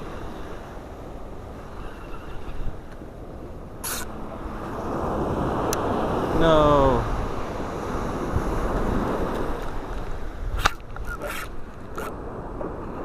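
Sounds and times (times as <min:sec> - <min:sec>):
ocean surf on beach: 0:00.0 - 0:13.0
wind on microphone: 0:00.0 - 0:13.0
short hissy scrapes: 0:03.8 - 0:04.2
sharp click: 0:10.6 - 0:12.1.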